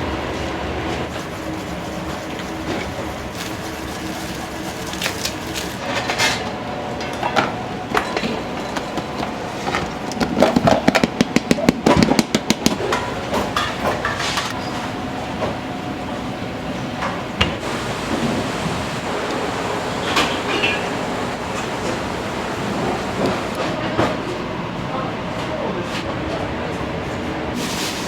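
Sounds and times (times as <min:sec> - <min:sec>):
kitchen hum: 0:00.0 - 0:23.6
kitchen clatter: 0:01.1 - 0:15.6, 0:17.0 - 0:23.6.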